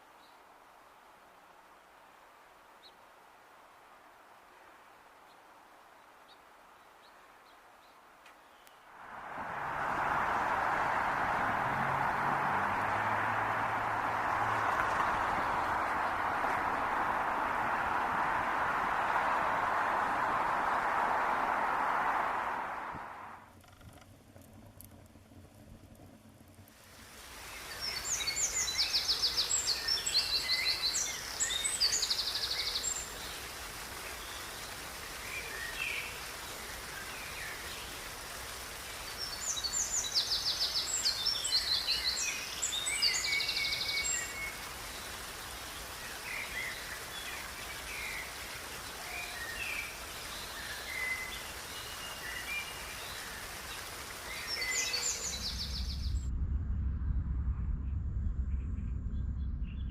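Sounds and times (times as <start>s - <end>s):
outdoor background hiss: 0.0s - 56.2s
songbirds singing: 6.0s - 8.9s, 9.7s - 22.9s, 27.4s - 56.2s
low rumble: 55.2s - 59.9s.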